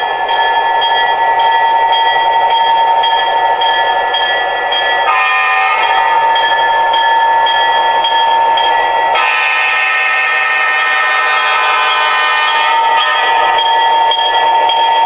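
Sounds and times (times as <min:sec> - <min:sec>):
locomotive horn blasts: 0:05.1 - 0:06.0, 0:09.2 - 0:13.4.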